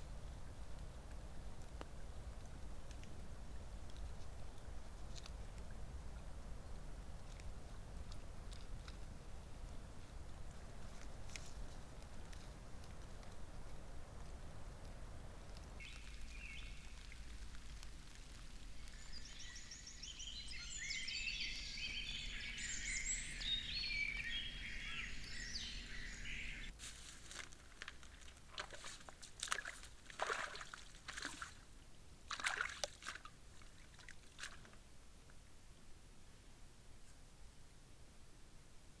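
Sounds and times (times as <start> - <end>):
songbirds singing: 15.6 - 17.8, 18.4 - 26.7
splashing in water: 27.8 - 31.6, 32.3 - 34.8.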